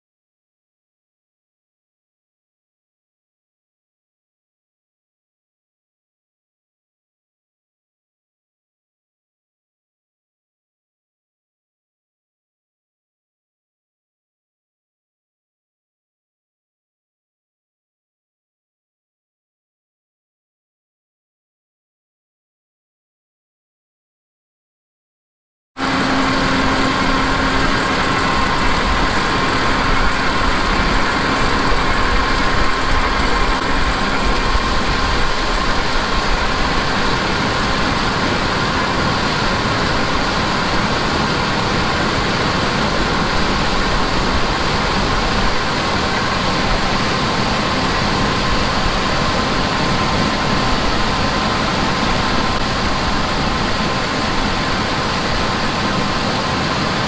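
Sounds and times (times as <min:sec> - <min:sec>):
heavy farm machinery running: 0:25.8 - 0:57.0.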